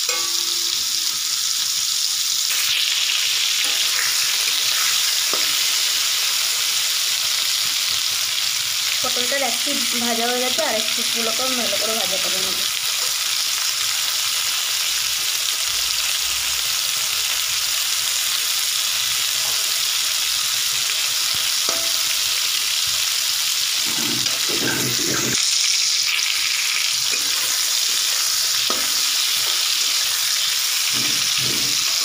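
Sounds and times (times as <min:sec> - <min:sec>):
vegetables sizzling in hot oil: 0:00.0 - 0:32.0
metal spatula scraping a pan: 0:23.8 - 0:25.4, 0:27.0 - 0:32.0.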